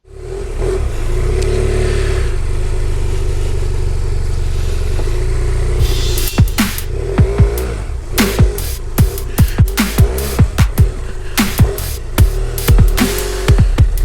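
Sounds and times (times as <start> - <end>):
motorcycle engine running: 0.0 - 14.0
electronic music with swoops: 5.8 - 14.0.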